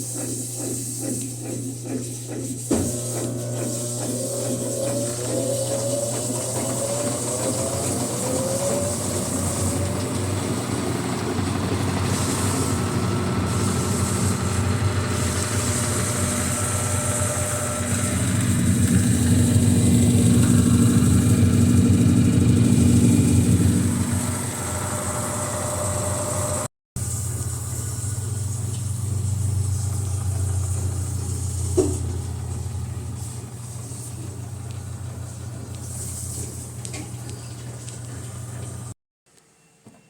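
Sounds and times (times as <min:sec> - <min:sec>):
washing machine motor running: 0:00.0 - 0:39.0.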